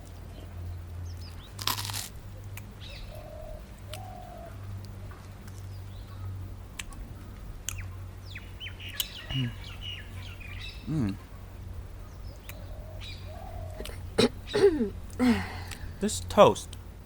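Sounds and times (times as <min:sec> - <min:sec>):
low steady hum: 0:00.0 - 0:17.0
loud crunch: 0:01.4 - 0:02.2
birds chirping: 0:02.7 - 0:16.6.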